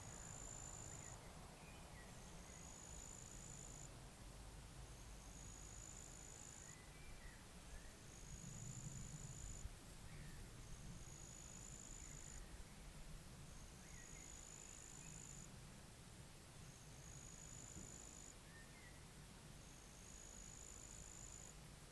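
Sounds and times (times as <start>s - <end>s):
faint bird chirps: 0.1s - 3.9s, 5.6s - 8.6s, 9.4s - 10.5s, 11.1s - 12.9s, 13.5s - 15.5s, 17.0s - 19.2s
low wind rumble: 7.7s - 11.2s.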